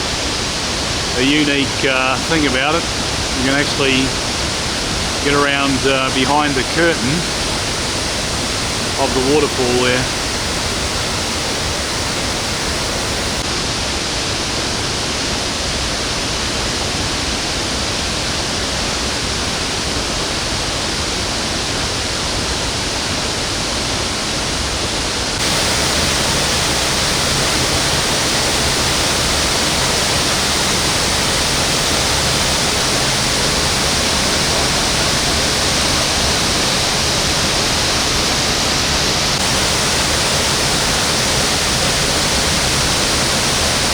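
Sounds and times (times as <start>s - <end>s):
waterfall rushing: 0.0s - 13.4s, 25.3s - 43.9s.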